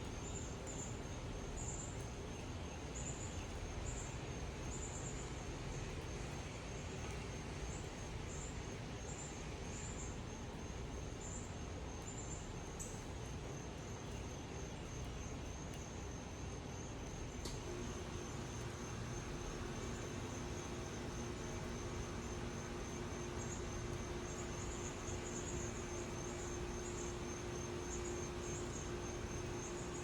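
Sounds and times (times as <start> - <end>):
outdoor hiss: 0.0 - 30.0
insects droning: 13.2 - 30.0.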